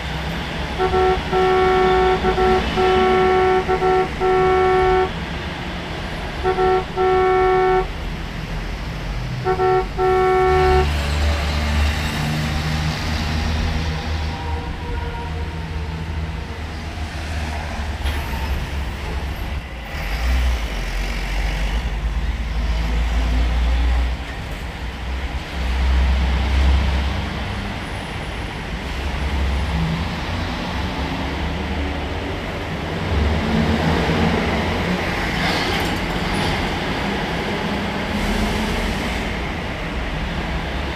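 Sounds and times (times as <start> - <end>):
engine rumble: 0.0 - 13.8
vehicle horn honks: 0.8 - 5.2, 6.4 - 8.0, 9.4 - 11.1.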